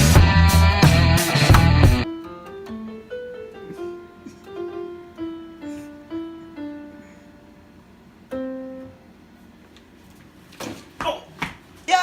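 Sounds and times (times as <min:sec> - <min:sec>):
piano playing single notes: 0:01.5 - 0:09.1.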